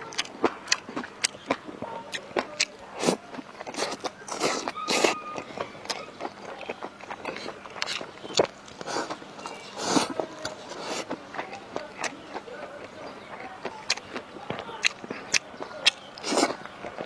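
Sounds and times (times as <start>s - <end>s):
food crunching: 0.0s - 17.0s.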